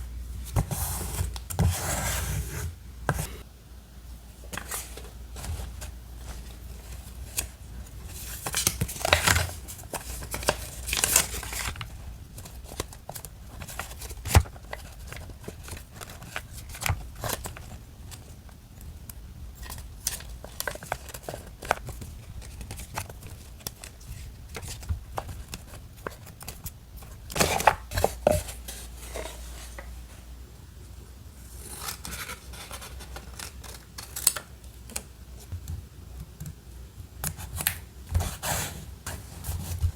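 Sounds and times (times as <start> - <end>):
paper rustling: 4.5 - 18.4, 19.6 - 29.9.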